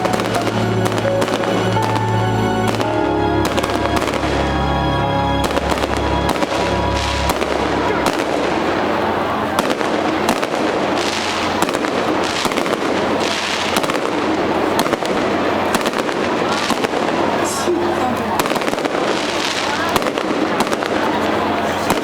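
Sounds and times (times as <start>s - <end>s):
fireworks bursting and crackling: 0.0s - 4.6s, 5.4s - 22.0s
music: 0.0s - 13.4s.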